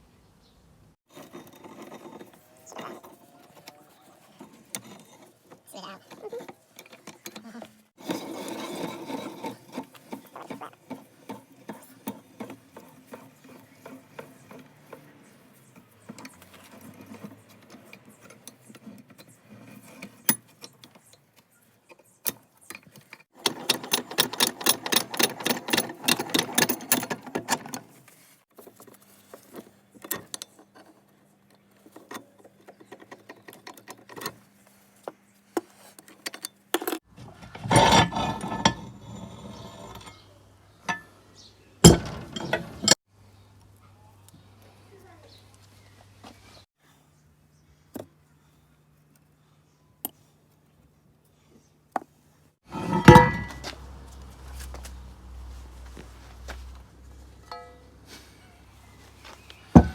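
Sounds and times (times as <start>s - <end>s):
mechanical rattling: 23.4s - 27.8s.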